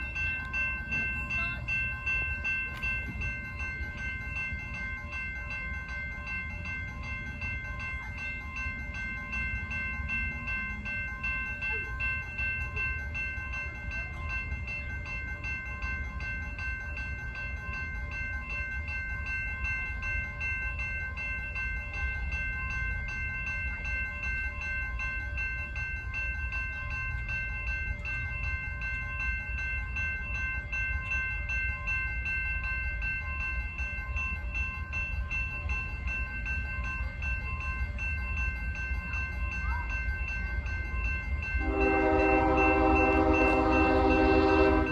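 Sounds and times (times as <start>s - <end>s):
high ringing tones: 0.0s - 44.9s
freight train rumbling past: 26.8s - 44.9s.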